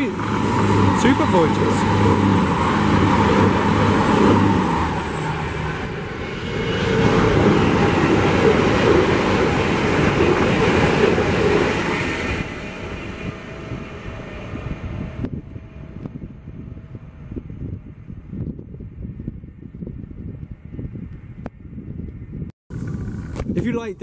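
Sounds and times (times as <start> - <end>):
train wheels rushing on rail: 0.0 - 17.0.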